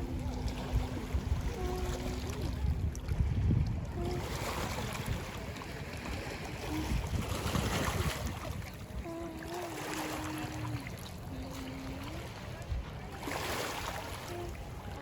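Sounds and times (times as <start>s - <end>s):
faint wavering tone: 0.0s - 2.8s
lake water washing: 0.0s - 15.0s
wind rumbling on microphone: 0.0s - 15.0s.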